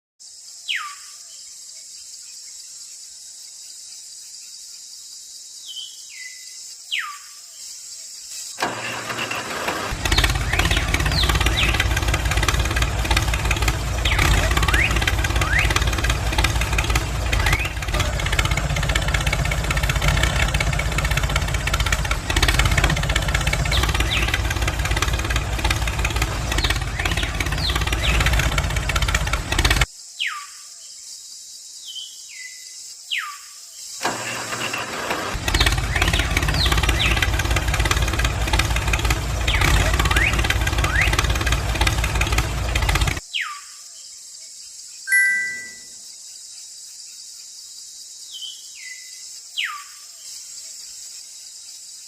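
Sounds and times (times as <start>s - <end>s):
engine running with deep rumble: 8.6s - 29.9s, 34.0s - 43.2s
falling whistle-like sweeps: 45.1s - 46.0s.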